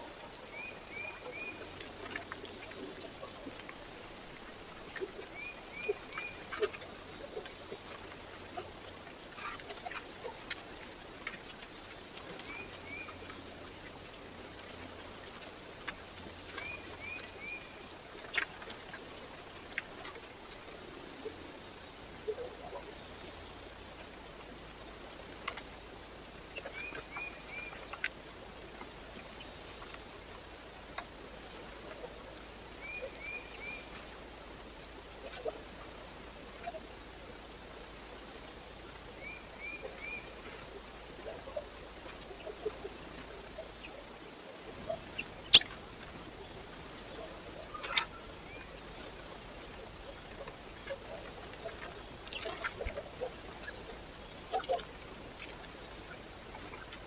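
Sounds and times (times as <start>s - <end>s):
microphone hiss: 0.0s - 57.0s
bird chirping: 44.8s - 46.6s.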